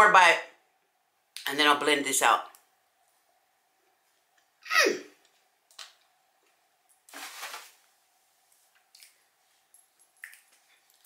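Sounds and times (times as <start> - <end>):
small mouth clicks: 10.2 - 11.0.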